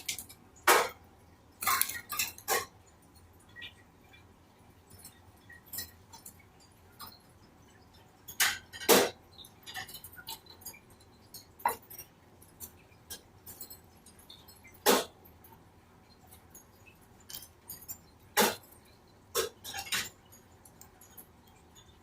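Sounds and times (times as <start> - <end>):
bird clicking against wire cage: 0.0 - 0.7
cage rattles: 0.0 - 3.7, 4.7 - 22.0.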